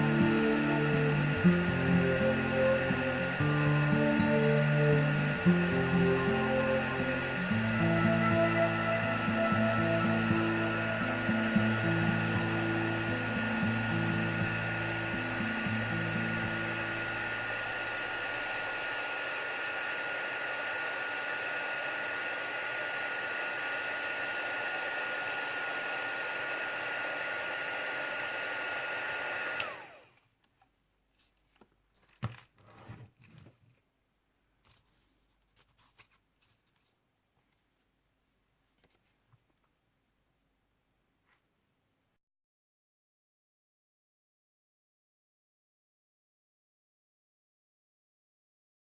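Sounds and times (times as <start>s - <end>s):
hot-air blower running: 0.0s - 30.2s.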